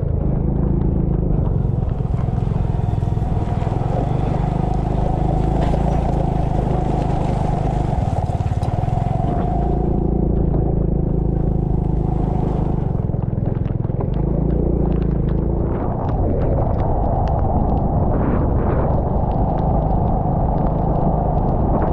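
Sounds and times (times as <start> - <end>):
small engine running under load: 0.0 - 16.1.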